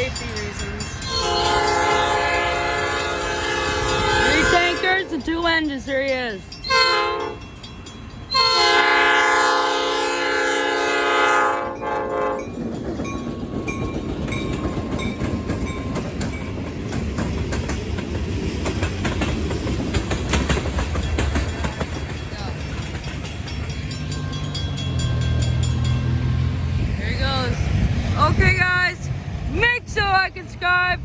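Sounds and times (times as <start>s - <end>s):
freight train rumbling past: 0.0s - 31.0s
locomotive air horn blast: 1.1s - 5.2s, 6.7s - 7.4s, 8.3s - 12.5s
wheels clicking over rail joints: 12.0s - 27.0s.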